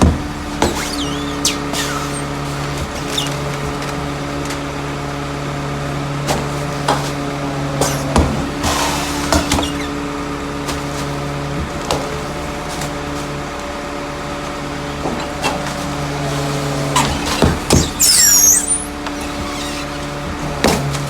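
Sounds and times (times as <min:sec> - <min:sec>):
sharp knocks and clanks: 0:00.0 - 0:04.6, 0:06.2 - 0:09.9, 0:14.9 - 0:16.2, 0:16.8 - 0:21.0
garbage truck engine hum: 0:00.0 - 0:21.0.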